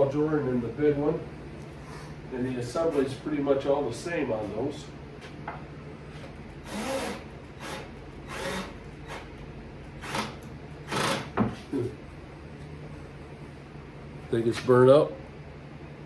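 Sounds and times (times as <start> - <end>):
steady low hum: 0.0 - 16.0
cordless drill bursts: 6.6 - 9.3, 10.0 - 11.4.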